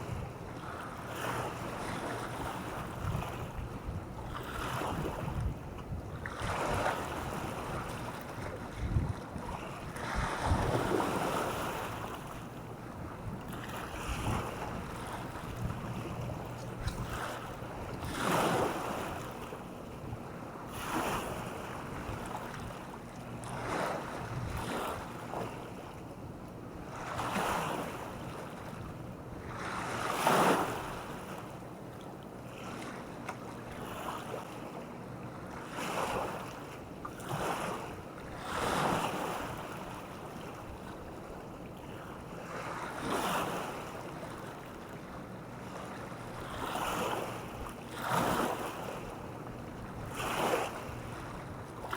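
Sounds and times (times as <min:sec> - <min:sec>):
small waves washing onto beach: 0:41.9 - 0:51.9.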